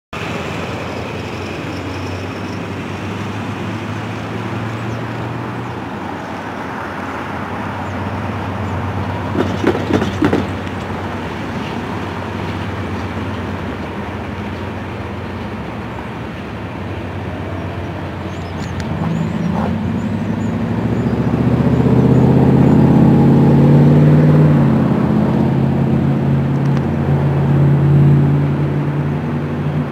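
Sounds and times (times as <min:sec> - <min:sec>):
train rumbling over steel bridge: 0:00.2 - 0:23.8
loud knocks: 0:09.3 - 0:10.6.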